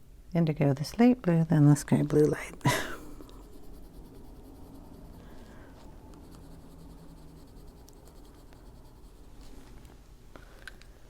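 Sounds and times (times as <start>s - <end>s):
pencil scratching on paper: 3.1s - 9.8s.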